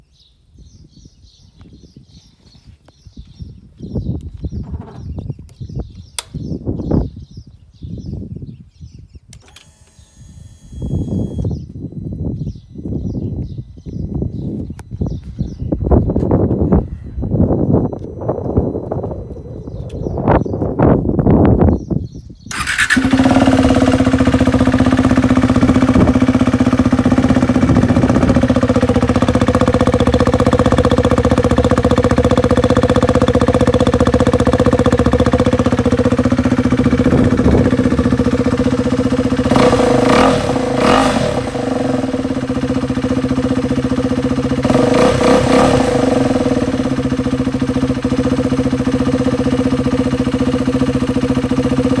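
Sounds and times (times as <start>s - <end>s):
motorcycle throttle blips: 9.3s - 11.7s, 22.5s - 52.0s
motorcycle engine idling: 22.5s - 52.0s.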